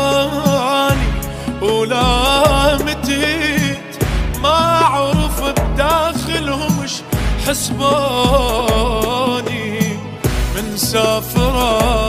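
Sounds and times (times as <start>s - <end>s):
bass drum hits: 0.9s - 6.3s.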